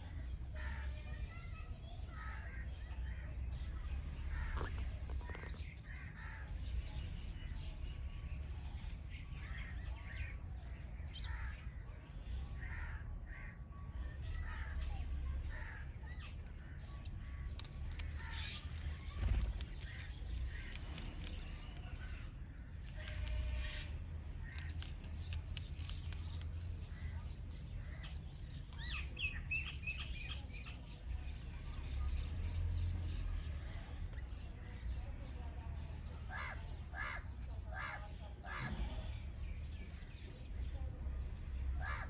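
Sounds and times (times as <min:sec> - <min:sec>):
birds calling: 0:00.0 - 0:06.8, 0:12.6 - 0:35.3, 0:35.9 - 0:42.0
steady low rumble: 0:14.1 - 0:37.6
quick sharp clicks: 0:17.2 - 0:34.8.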